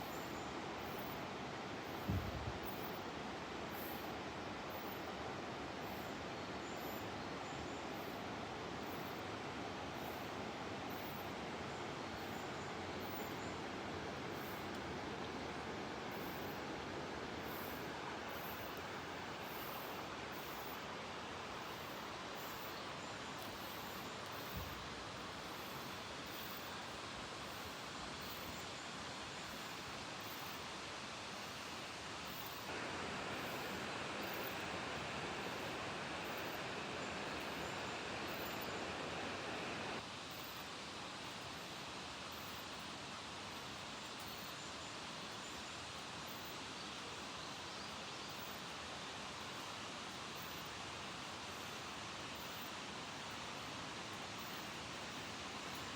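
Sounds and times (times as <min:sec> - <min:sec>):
river water rushing: 0:32.7 - 0:40.2.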